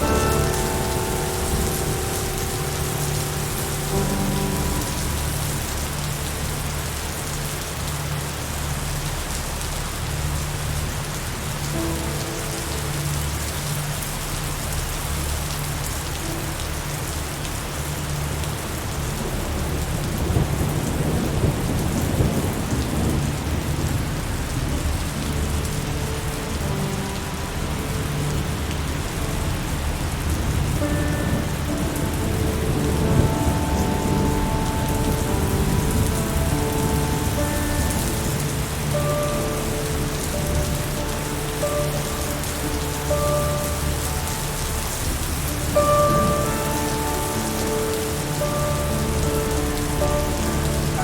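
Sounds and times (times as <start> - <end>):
heavy rain: 0.0 - 51.0
low thunder rumble: 18.7 - 51.0.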